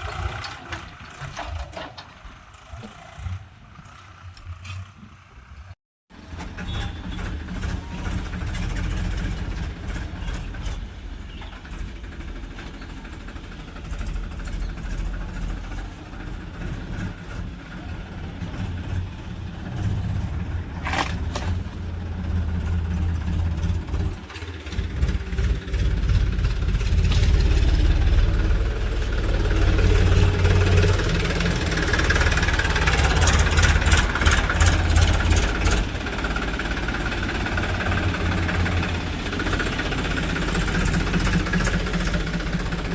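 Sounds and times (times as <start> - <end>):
diesel engines rumbling: 0.0 - 42.9
rattling clicks: 20.8 - 21.8.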